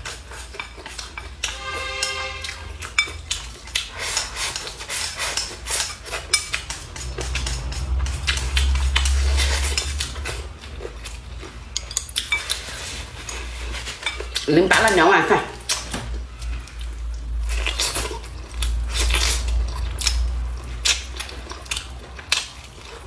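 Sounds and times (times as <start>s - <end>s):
chopsticks clinking on bowls: 0.1s - 10.4s, 11.0s - 15.8s.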